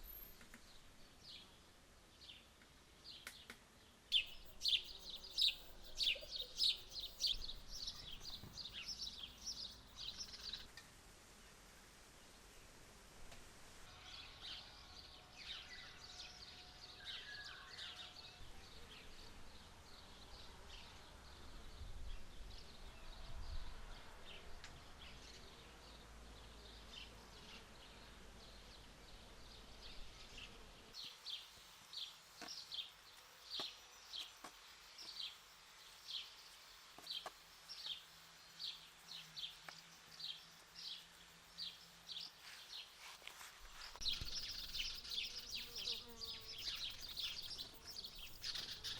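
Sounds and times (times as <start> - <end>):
small birds chirping: 2.2 - 10.7, 25.0 - 48.9.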